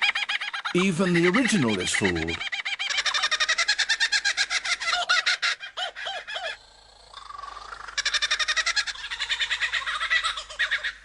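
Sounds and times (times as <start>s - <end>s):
lyrebird chattering song: 0.8s - 3.5s.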